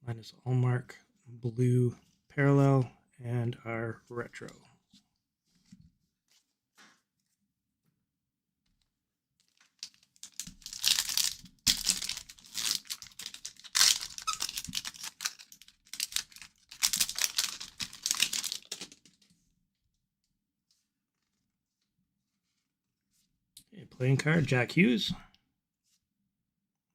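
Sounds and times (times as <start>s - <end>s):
wrapper crinkling: 9.4s - 19.2s.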